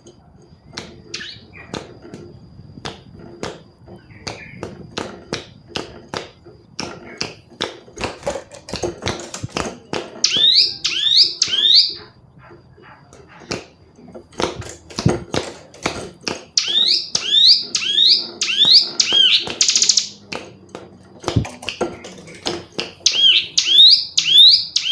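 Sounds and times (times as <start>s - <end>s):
bird calling sharp tick notes: 10.2s - 12.1s, 16.6s - 20.3s, 23.0s - 24.9s
bird quick arched chirps: 10.2s - 12.1s, 16.6s - 20.2s.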